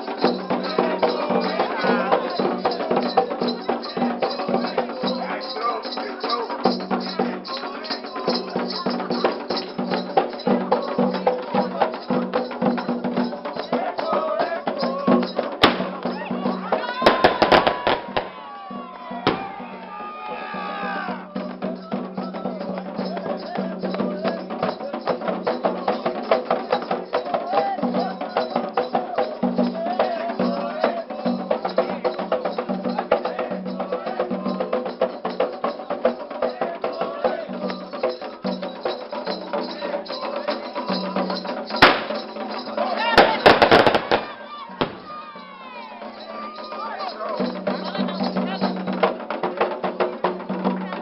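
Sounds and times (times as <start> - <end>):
bell-like pattern: 0.0 - 19.2, 21.3 - 51.0
hand percussion: 0.0 - 51.0
voices singing: 0.0 - 51.0
sharp crack: 41.8 - 42.2.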